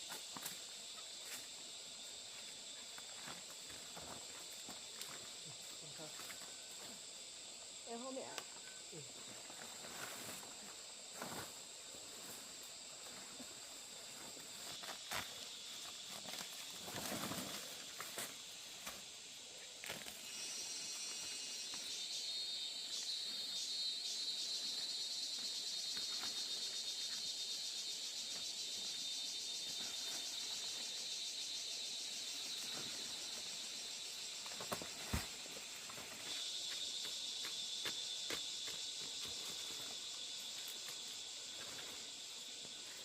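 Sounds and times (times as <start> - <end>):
insects buzzing: 0.0 - 43.0
rustling through vegetation: 9.2 - 20.6.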